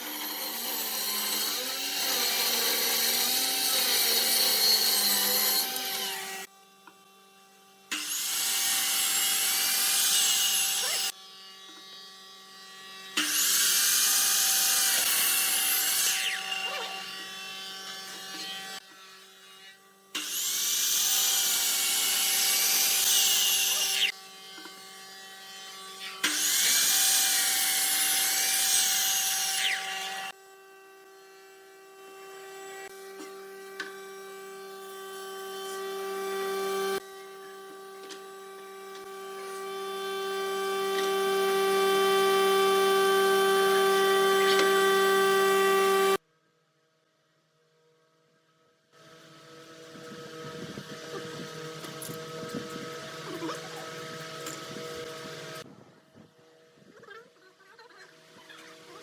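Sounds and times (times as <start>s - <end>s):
power tool cutting wood: 0.0s - 46.2s, 49.0s - 55.7s.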